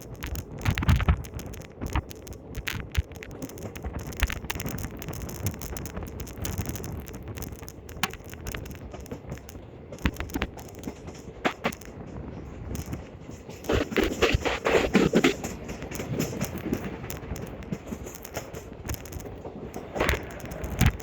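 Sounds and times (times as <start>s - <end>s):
clicks and knocks: 0.0s - 12.0s
train rumble: 0.0s - 21.0s.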